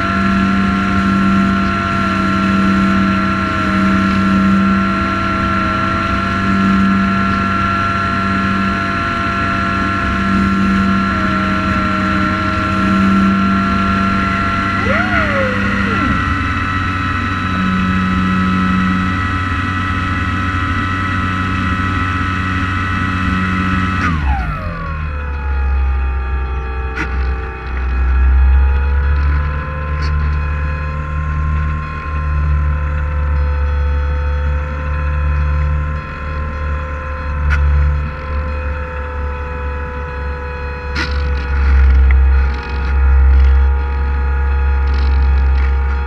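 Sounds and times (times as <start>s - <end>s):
drone propellers whining: 10.9s - 18.8s.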